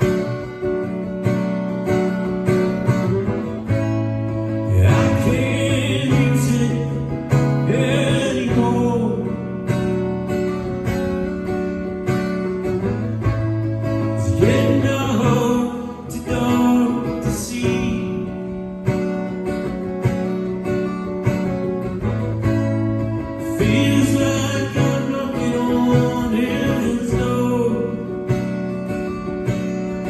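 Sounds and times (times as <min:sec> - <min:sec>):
acoustic guitar strumming: 0:00.0 - 0:30.0
sustained bass: 0:00.0 - 0:30.0
person singing: 0:04.7 - 0:09.6, 0:14.2 - 0:18.4, 0:23.4 - 0:28.2.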